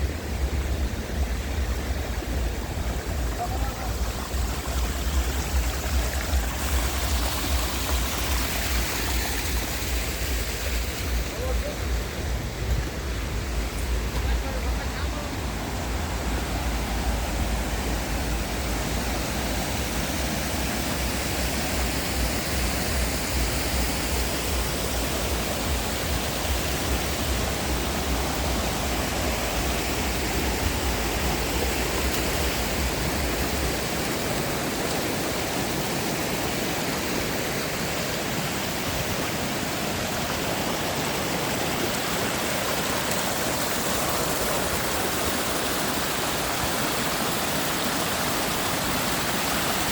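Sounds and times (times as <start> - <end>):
water rushing: 0.0 - 49.9.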